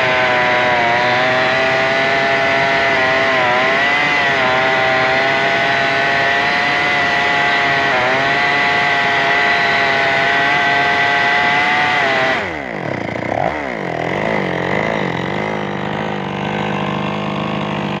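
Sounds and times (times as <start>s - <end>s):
chainsaw engine revving: 0.0s - 18.0s.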